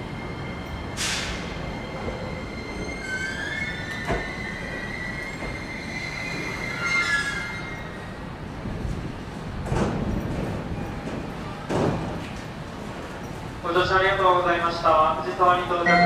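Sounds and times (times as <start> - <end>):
train cars rumbling: 0.0 - 16.0
train brakes squealing: 0.8 - 8.2.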